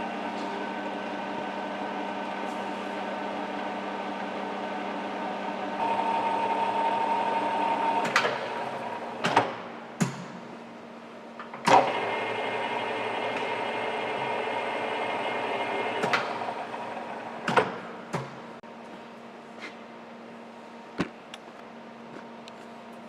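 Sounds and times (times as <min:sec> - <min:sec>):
lathe gearing hum: 0:00.0 - 0:09.3, 0:11.6 - 0:18.6.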